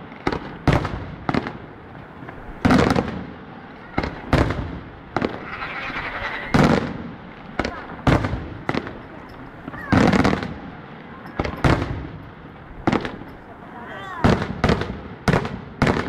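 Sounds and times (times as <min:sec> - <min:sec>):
fireworks banging: 0:00.0 - 0:16.0
fireworks crackling: 0:00.0 - 0:16.0.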